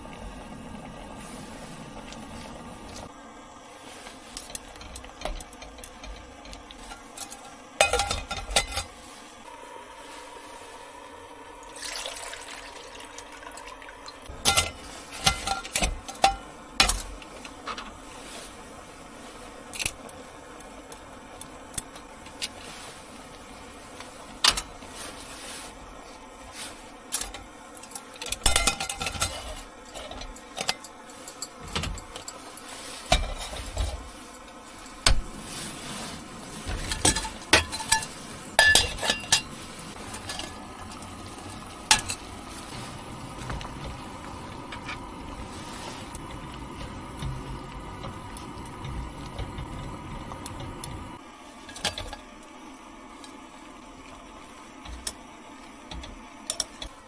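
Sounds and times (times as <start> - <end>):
cookware clinking and knocking: 4.8 - 8.9
liquid running or pouring: 10.1 - 17.4, 26.5 - 52.3.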